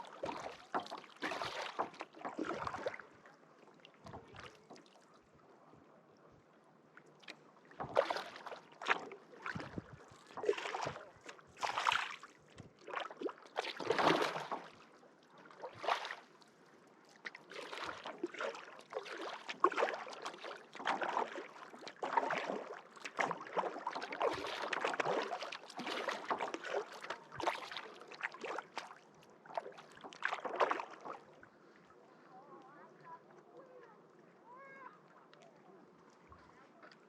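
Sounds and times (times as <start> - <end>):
kayak paddle splashing in water: 0.0 - 3.2, 7.2 - 16.3, 17.2 - 31.4
water dripping off paddle: 0.1 - 3.0, 17.2 - 31.2.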